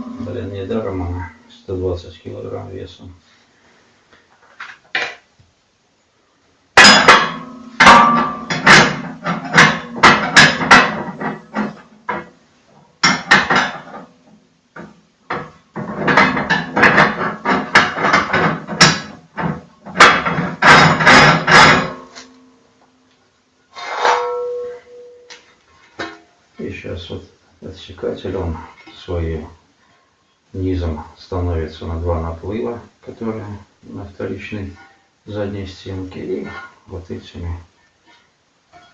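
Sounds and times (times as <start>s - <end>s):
metal parts clanking in stove: 6.8s - 12.3s, 14.8s - 22.3s, 23.8s - 26.3s.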